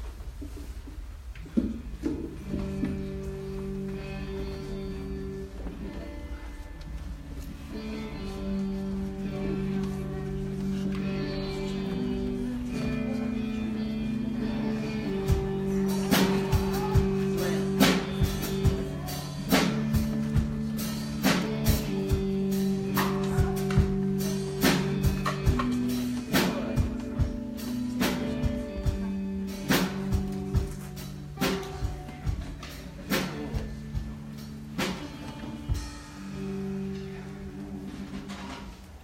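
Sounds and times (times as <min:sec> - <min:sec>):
guitar chords: 0:01.4 - 0:39.0
drum beat with cymbal hits: 0:10.6 - 0:36.8.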